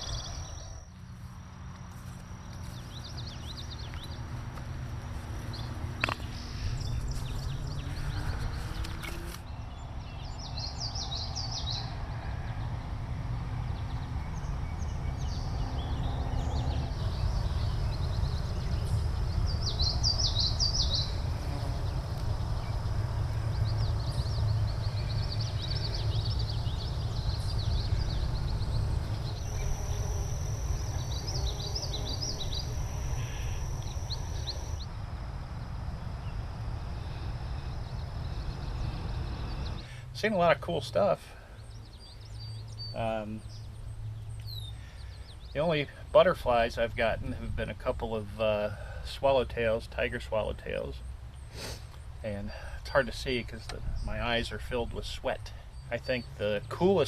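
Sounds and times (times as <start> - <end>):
steady low rumble: 0.0 - 40.6
songbirds chirping: 0.0 - 57.0
high-pitched buzz: 16.7 - 39.8.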